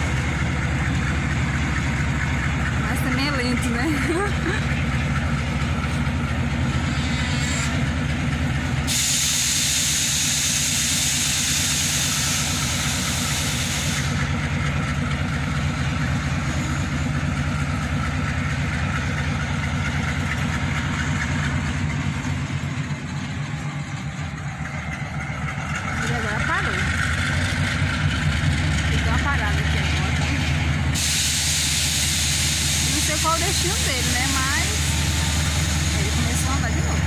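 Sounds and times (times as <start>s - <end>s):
diesel locomotive engine drone: 0.0s - 37.0s
freight train rumbling past: 0.0s - 37.0s
loud hiss: 8.8s - 14.3s, 30.9s - 37.0s.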